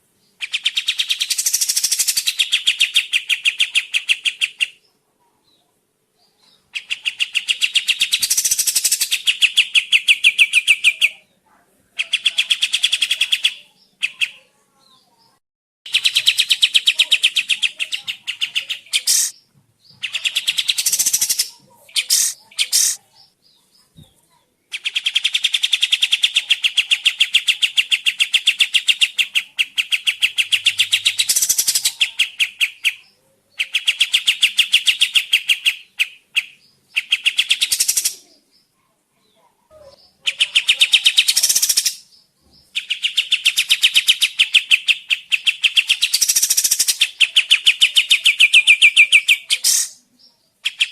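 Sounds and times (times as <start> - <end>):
bird trilling chirps: 0.2 - 5.6, 6.3 - 11.1, 12.0 - 38.8, 39.4 - 50.9.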